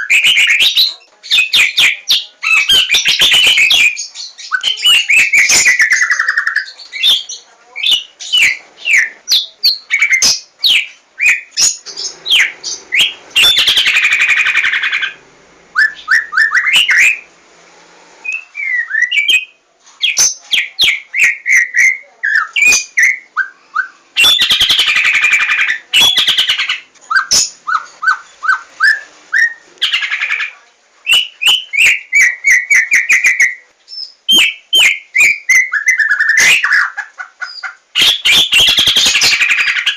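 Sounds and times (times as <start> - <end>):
bird harsh rasping chatter: 11.3 - 15.2, 23.8 - 28.7, 35.8 - 39.9
bird singing whistled notes: 15.8 - 17.3, 18.2 - 25.0, 31.0 - 36.8.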